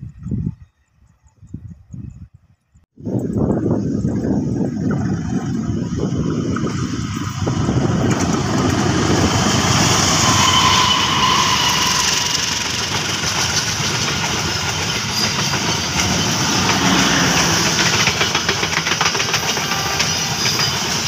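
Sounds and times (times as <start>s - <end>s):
locomotive engine rumble: 3.1s - 21.0s
train coaches clattering on rails: 7.0s - 21.0s.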